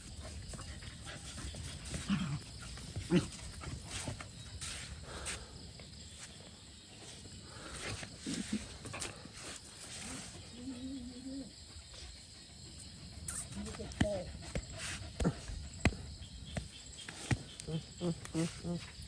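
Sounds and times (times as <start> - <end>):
dogs making low vocal sounds: 0.0 - 6.0, 7.0 - 19.0.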